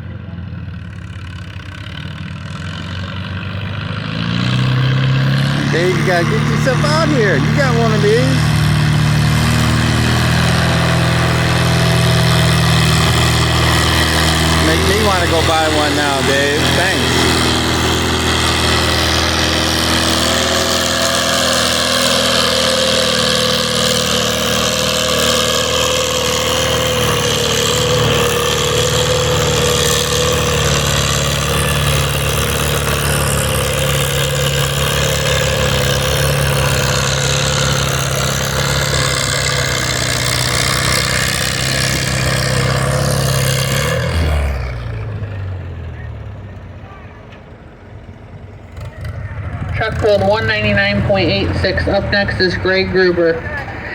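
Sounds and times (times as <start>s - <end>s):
tractor engine under load: 0.0s - 53.9s.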